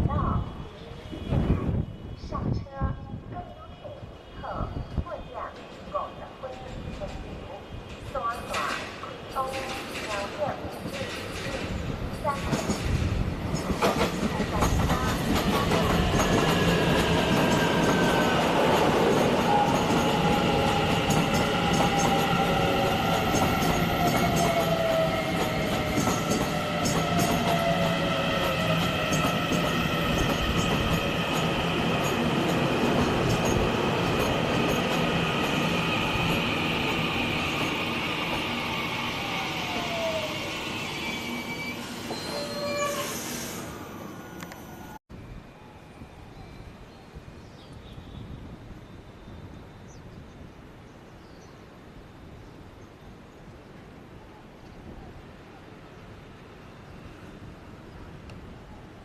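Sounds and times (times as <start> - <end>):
train wheels clacking on rails: 5.4 - 38.7
high squealing tones: 39.0 - 45.0.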